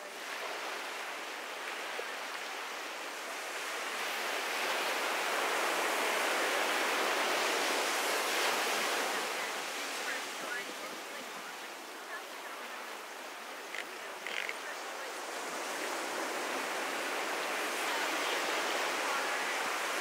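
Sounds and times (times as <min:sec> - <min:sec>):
ocean surf on a beach: 0:00.0 - 0:20.0.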